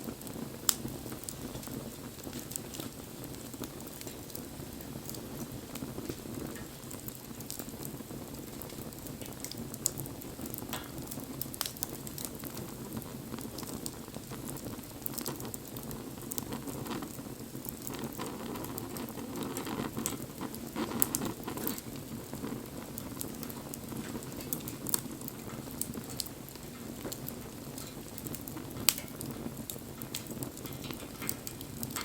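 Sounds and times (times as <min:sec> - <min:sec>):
bonfire crackling and popping: 0:00.0 - 0:32.0.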